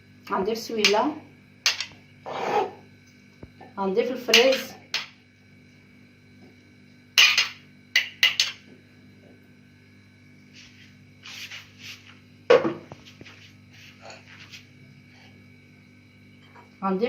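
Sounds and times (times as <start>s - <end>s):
utensils clinking against a bowl: 1.7s - 2.7s, 7.2s - 8.6s.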